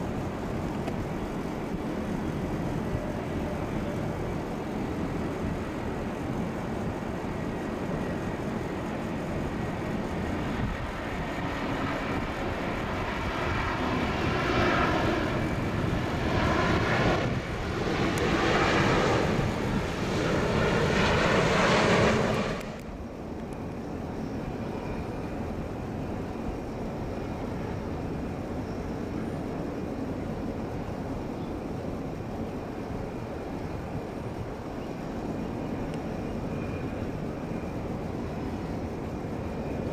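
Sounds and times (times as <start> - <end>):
jet engines whooshing: 9.4 - 24.4.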